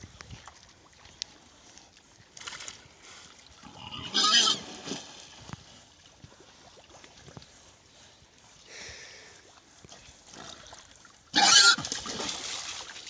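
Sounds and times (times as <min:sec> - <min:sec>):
water splashing: 0:02.4 - 0:07.3, 0:10.5 - 0:13.0
pig squealing: 0:03.6 - 0:04.8, 0:11.4 - 0:11.8.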